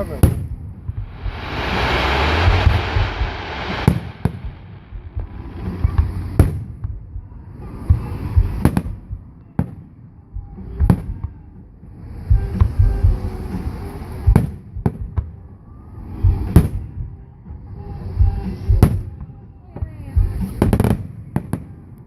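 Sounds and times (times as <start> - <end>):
low rumbling: 0.9 - 6.8
fireworks crackling hiss: 1.0 - 6.4.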